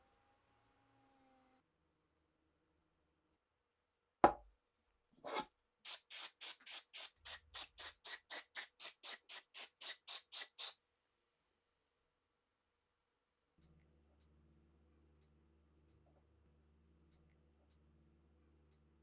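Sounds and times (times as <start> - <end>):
short scrape: 5.2 - 10.8
quick rubbing strokes: 5.3 - 10.8.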